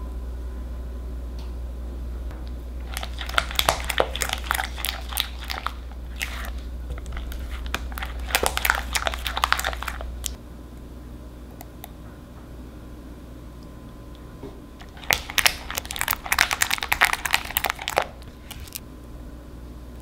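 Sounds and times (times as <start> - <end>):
spatula stirring sticky batter: 2.8 - 10.4, 14.8 - 18.8.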